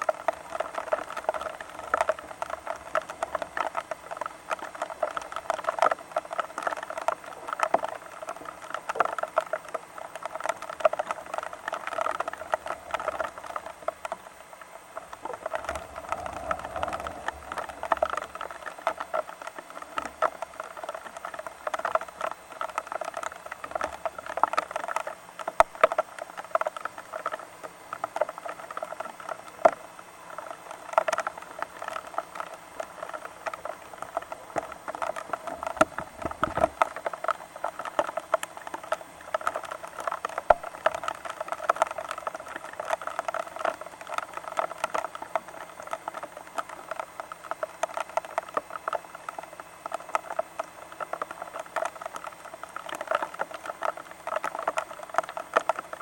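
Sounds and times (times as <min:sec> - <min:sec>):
rain pattering: 0:00.0 - 0:56.0
low rumble: 0:15.3 - 0:19.0.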